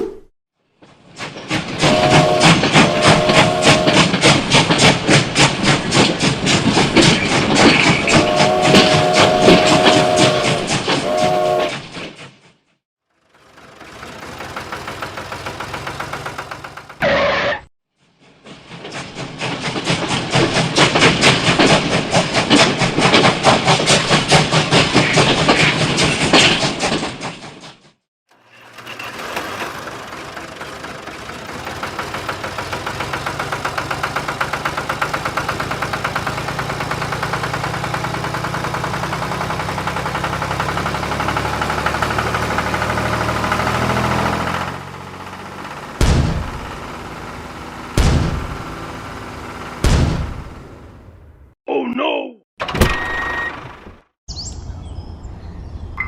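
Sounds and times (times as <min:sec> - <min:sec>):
small engine rattly running: 0:13.0 - 0:17.0, 0:28.3 - 0:49.8
engine running steadily: 0:13.1 - 0:17.0, 0:28.3 - 0:50.9.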